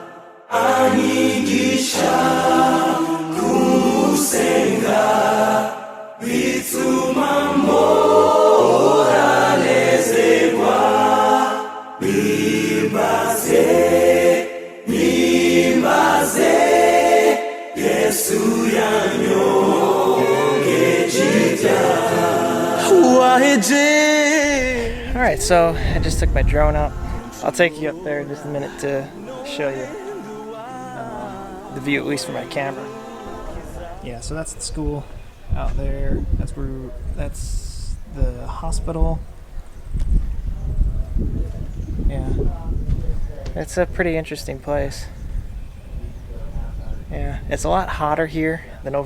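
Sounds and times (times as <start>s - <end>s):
choir singing worship song: 0.0s - 35.7s.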